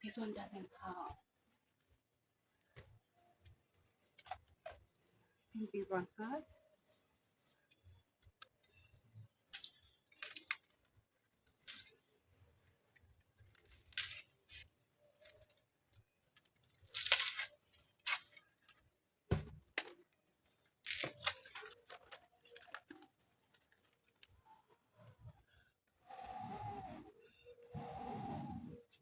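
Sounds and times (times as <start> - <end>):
dry twigs crackling and scraping: 6.7 - 19.0, 19.8 - 24.7.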